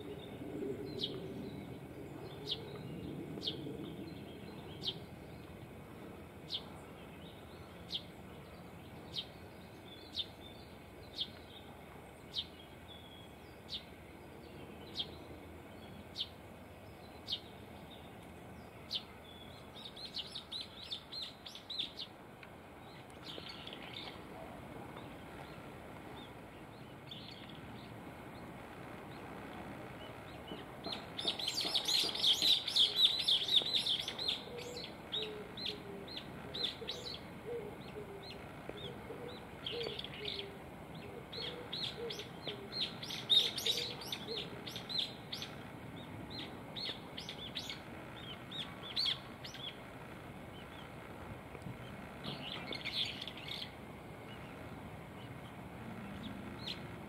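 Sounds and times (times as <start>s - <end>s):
bird chirping: 30.0s - 49.8s.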